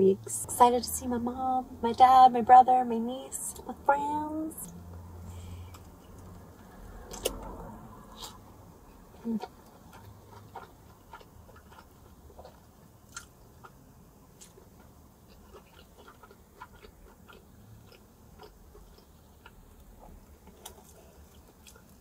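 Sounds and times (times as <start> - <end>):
person chewing food: 5.5 - 22.0.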